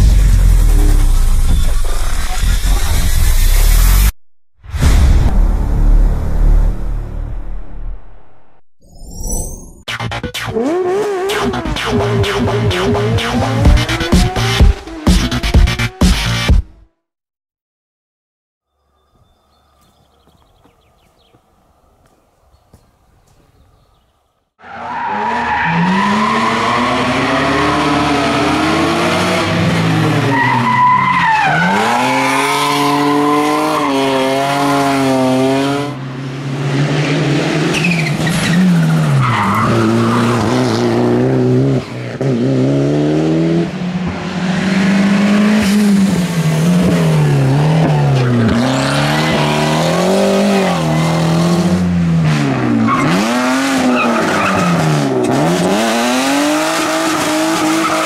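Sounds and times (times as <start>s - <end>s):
rally car engine revving: 10.0s - 16.5s, 24.7s - 58.0s.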